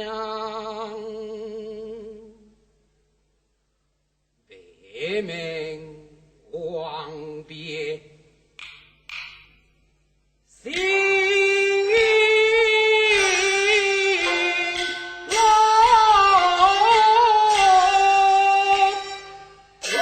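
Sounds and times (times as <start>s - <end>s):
opera singing: 0.0s - 2.5s, 10.6s - 20.0s.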